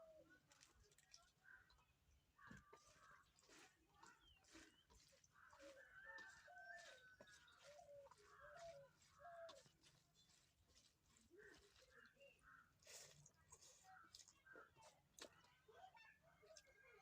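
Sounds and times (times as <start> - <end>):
faint chickens clucking: 3.9 - 10.2.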